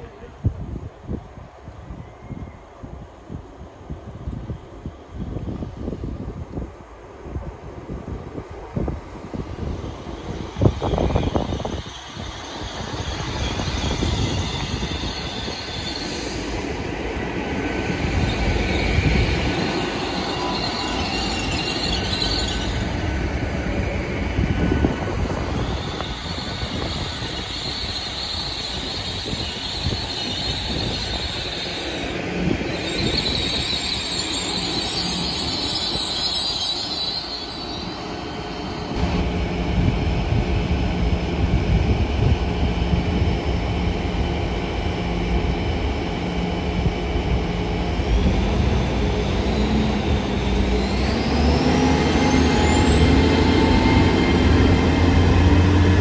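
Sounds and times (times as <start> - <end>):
train wheels squealing: 1.9 - 3.0, 9.3 - 39.0, 47.4 - 56.0
rail rumble: 3.0 - 56.0.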